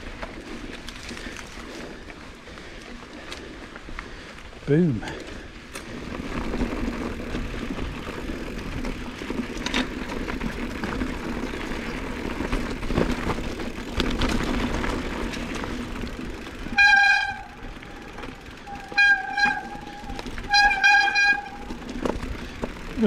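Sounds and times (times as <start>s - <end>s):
tyre and wind noise: 5.5s - 23.0s
bike knocks and rattles: 5.7s - 23.0s.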